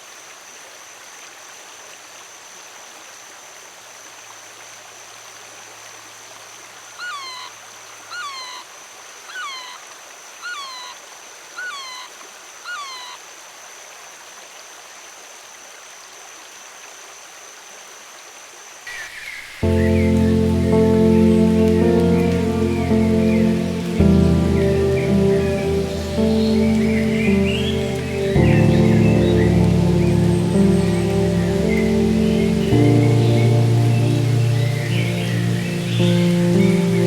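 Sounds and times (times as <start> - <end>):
stream water flowing: 0.0 - 37.0
animal calling: 7.0 - 13.2.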